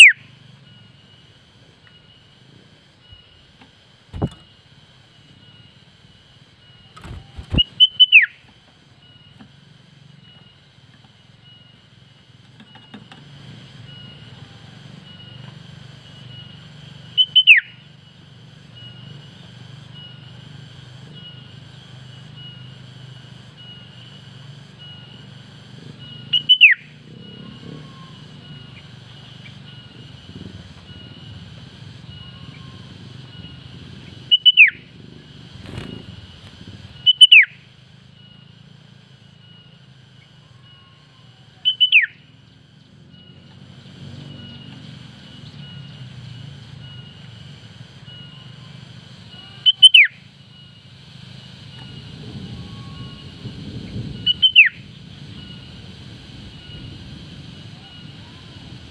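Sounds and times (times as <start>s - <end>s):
bird calling whistled notes: 0.0s - 0.3s, 6.6s - 9.3s, 16.2s - 17.8s, 26.0s - 29.9s, 32.0s - 34.9s, 37.0s - 37.6s, 39.5s - 42.3s, 49.5s - 50.6s, 54.2s - 55.7s
faint pulsing chirr: 0.0s - 58.9s.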